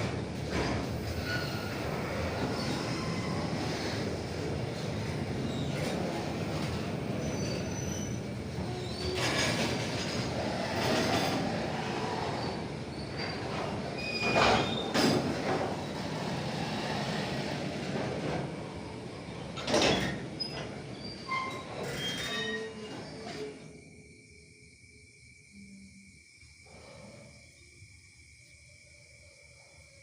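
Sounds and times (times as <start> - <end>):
train cars rumbling: 0.0 - 24.1
high-pitched wheel squeals: 1.1 - 4.0, 7.2 - 11.5, 12.3 - 15.2, 19.8 - 23.8.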